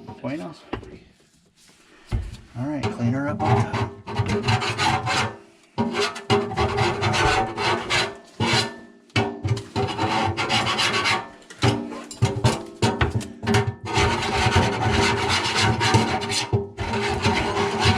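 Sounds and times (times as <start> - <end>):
hand scrubbing a hard surface: 9.6 - 11.3.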